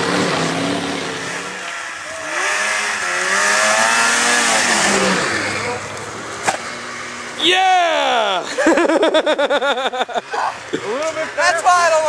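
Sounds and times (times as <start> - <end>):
vehicle engine revving hard: 0.0 - 7.4.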